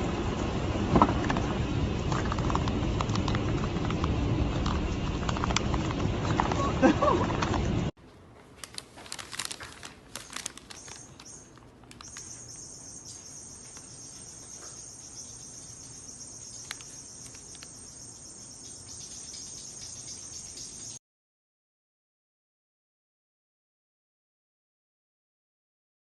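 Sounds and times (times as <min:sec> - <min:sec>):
insects chirring: 0:09.1 - 0:21.0.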